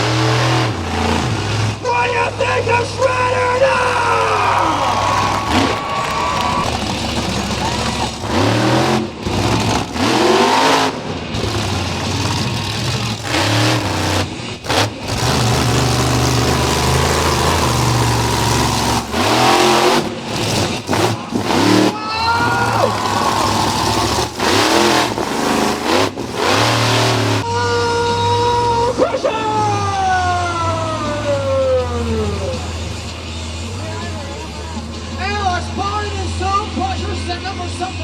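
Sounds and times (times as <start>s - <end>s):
truck engine revving: 0.0s - 1.9s, 3.2s - 27.5s.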